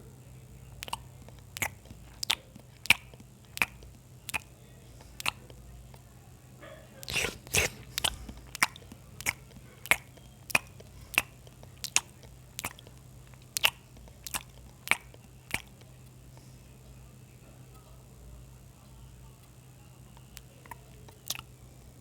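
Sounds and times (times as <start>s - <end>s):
wet mouth-smacking chewing: 0.7s - 6.2s, 6.9s - 16.5s, 20.2s - 21.6s
crunching bite: 0.8s - 6.1s, 7.0s - 15.9s, 20.4s - 21.5s.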